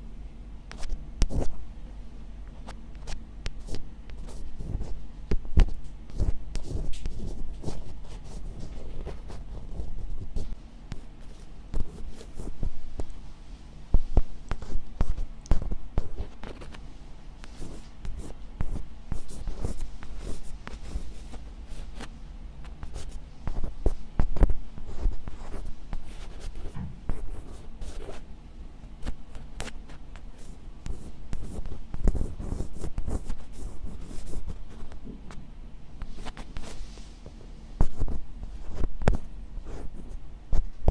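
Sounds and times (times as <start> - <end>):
close scratching strokes: 17.4 - 28.2, 36.0 - 40.2.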